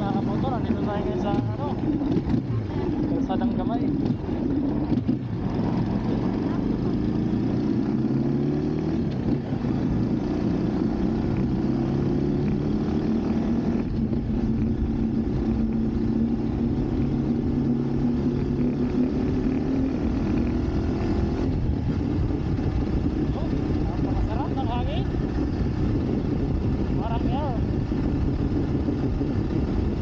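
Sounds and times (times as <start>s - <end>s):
motorcycle engine running: 0.0s - 30.0s
wind on microphone: 13.3s - 30.0s.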